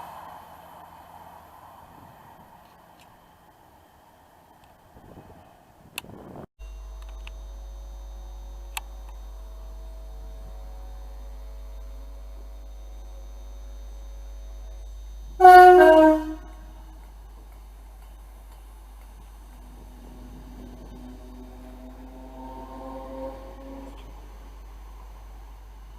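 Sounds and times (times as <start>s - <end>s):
steady hum: 6.0s - 25.9s
low rumble: 6.2s - 25.9s
train two-tone horn: 13.6s - 17.1s, 19.7s - 24.4s.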